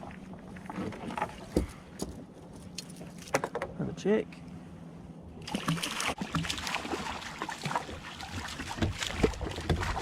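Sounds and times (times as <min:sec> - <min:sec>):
knocks and rattles on plastic kayak: 0:07.7 - 0:10.0.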